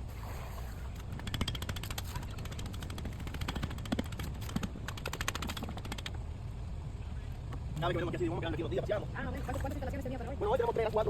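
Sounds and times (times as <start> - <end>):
rapid mechanical clicking: 1.0 - 6.2.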